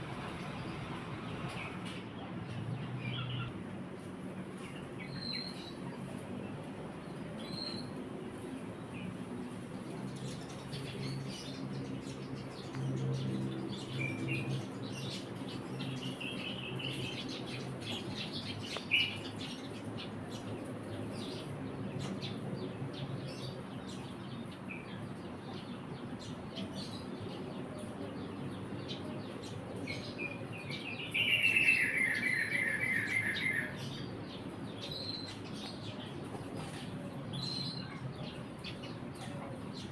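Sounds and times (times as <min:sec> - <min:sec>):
sparrow chirping: 0:10.1 - 0:39.9.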